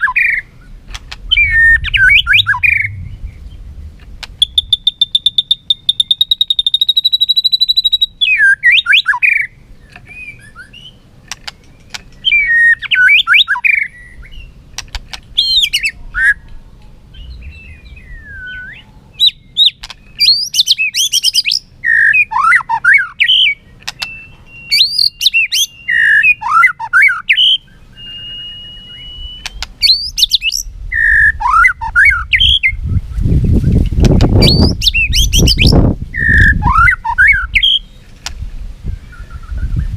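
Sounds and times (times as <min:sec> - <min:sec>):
bird singing whistled phrases: 0:00.0 - 0:00.7, 0:01.3 - 0:03.6, 0:04.4 - 0:11.0, 0:12.1 - 0:14.6, 0:15.4 - 0:16.5, 0:17.1 - 0:33.8, 0:34.4 - 0:38.0, 0:38.9 - 0:39.9
low rumble: 0:00.4 - 0:05.7, 0:15.9 - 0:19.6.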